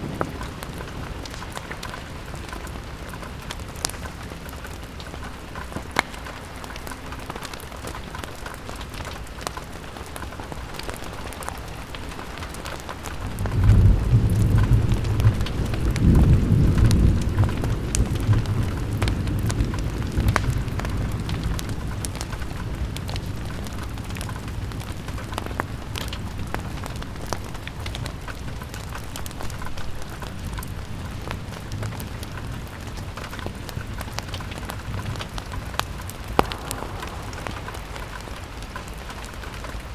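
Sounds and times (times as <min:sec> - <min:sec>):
rain on window glass: 0:00.0 - 0:39.9
low roll of thunder: 0:13.1 - 0:24.8, 0:34.6 - 0:39.9.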